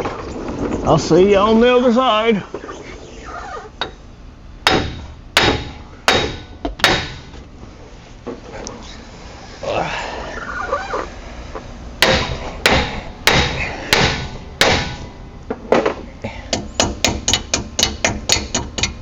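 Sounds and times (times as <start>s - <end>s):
hammer striking metal: 4.6s - 7.3s, 12.0s - 15.2s, 16.5s - 19.0s.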